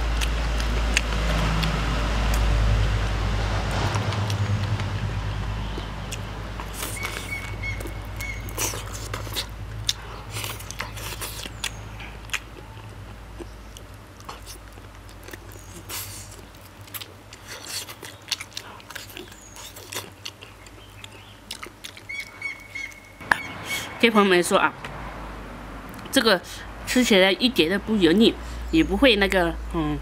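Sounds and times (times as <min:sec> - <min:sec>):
wet chewing with lip smacks: 0:00.0 - 0:02.5, 0:05.6 - 0:23.8
low rumble: 0:00.0 - 0:14.0.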